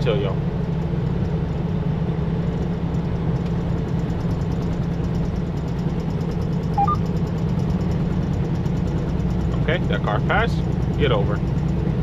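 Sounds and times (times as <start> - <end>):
truck engine and road noise: 0.0 - 12.0
two-note electronic beep: 6.8 - 7.0.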